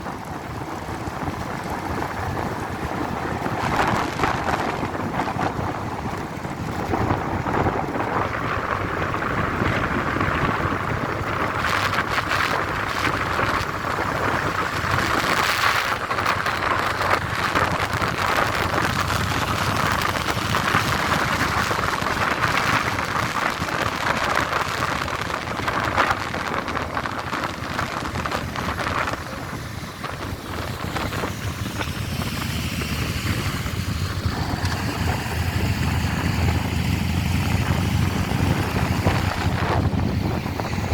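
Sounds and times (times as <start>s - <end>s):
motorcycle engines running: 0.0s - 40.9s
rushing wind and road noise: 0.0s - 40.9s.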